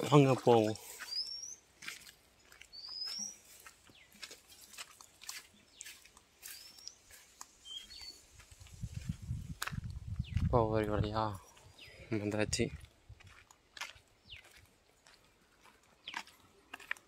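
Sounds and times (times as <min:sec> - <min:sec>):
bird chirping: 0:00.0 - 0:04.8, 0:05.4 - 0:08.4, 0:10.1 - 0:10.6, 0:11.4 - 0:12.3, 0:14.2 - 0:15.1
footsteps through dry grass: 0:00.0 - 0:17.0.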